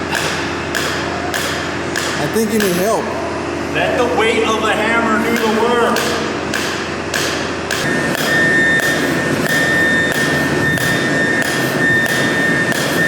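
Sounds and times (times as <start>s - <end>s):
hand hammer striking: 0.1s - 2.9s, 5.4s - 13.0s
steady high whine: 2.1s - 13.0s.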